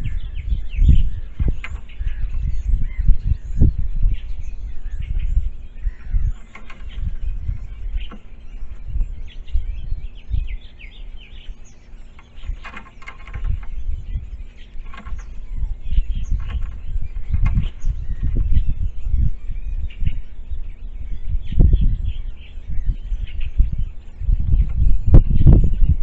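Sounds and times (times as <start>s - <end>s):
dull low thumps: 0.0s - 26.0s
small birds chirping: 0.0s - 26.0s.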